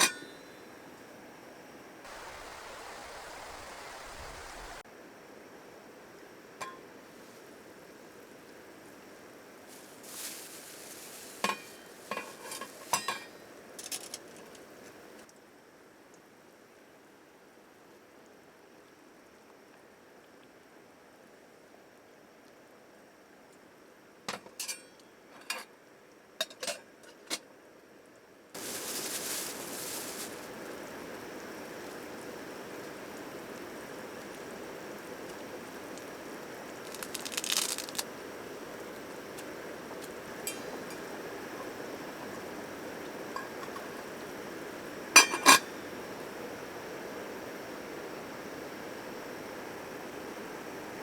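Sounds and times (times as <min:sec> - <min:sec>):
even hiss: 0:02.0 - 0:04.8, 0:07.1 - 0:15.2, 0:28.6 - 0:51.0
dishes and utensils clinking: 0:11.4 - 0:14.1, 0:40.4 - 0:41.0, 0:43.4 - 0:44.1, 0:45.2 - 0:45.8.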